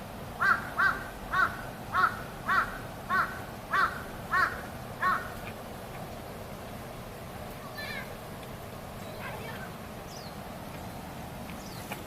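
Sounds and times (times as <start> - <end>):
crow cawing: 0.4 - 5.4.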